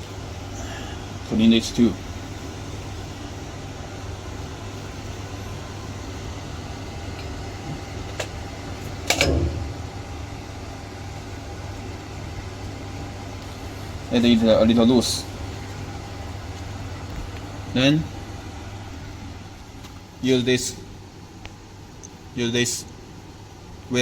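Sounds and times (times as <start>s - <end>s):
grinding machine humming: 0.0s - 12.3s
heavy clunk: 9.1s - 9.8s.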